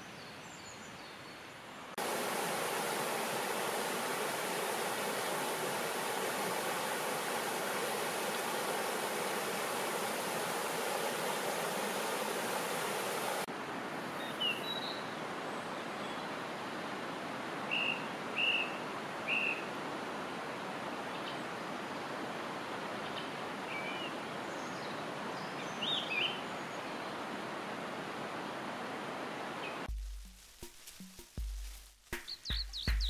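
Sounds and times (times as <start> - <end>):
steady background hiss: 0.0 - 32.2
stream running: 1.9 - 31.9
high bird chirps: 32.2 - 33.0.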